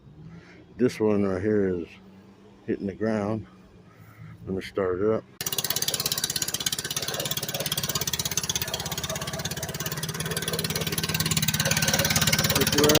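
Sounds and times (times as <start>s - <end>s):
small engine idling: 5.4s - 13.0s.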